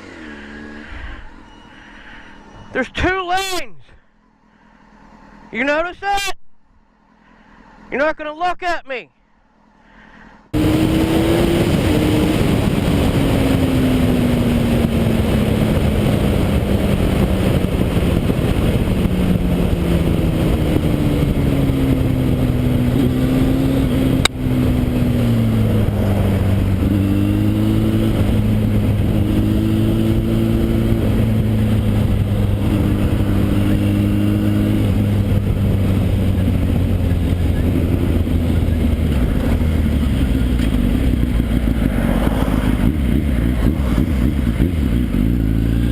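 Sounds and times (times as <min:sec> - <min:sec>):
motorcycle engine: 0:00.0 - 0:02.8, 0:10.5 - 0:45.9
wind rush: 0:10.6 - 0:45.9.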